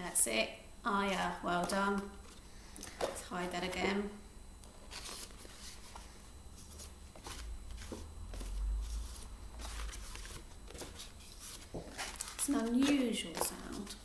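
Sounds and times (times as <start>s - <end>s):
paper flashcards rustling: 4.9s - 14.0s.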